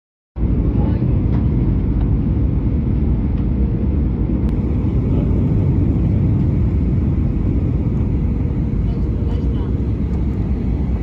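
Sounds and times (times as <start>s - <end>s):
jet airliner low rumble: 0.4s - 11.0s
faint steady hum: 4.5s - 11.0s.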